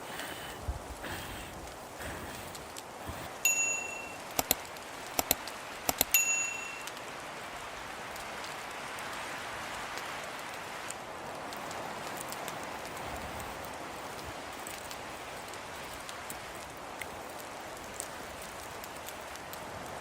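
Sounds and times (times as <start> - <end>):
steady hiss: 0.0 - 20.0
short metallic rings: 3.4 - 4.3, 6.0 - 7.0
sharp clicks: 3.5 - 7.0.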